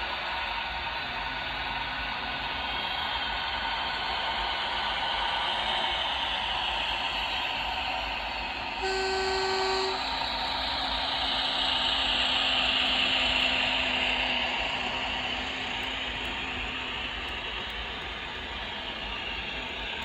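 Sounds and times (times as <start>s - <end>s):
model train running sound: 0.0s - 20.0s
train horn blast: 8.8s - 10.4s.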